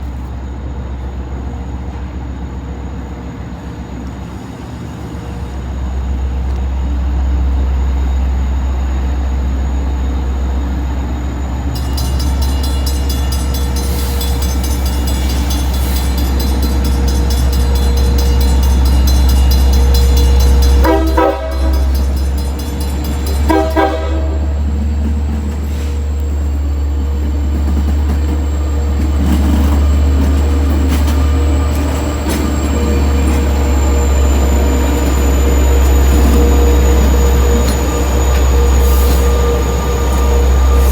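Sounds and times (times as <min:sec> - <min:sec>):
diesel locomotive rumbling: 0:00.0 - 0:40.9
crossing bell ringing: 0:11.7 - 0:40.9
train horn blasts: 0:20.1 - 0:22.3, 0:23.2 - 0:24.7.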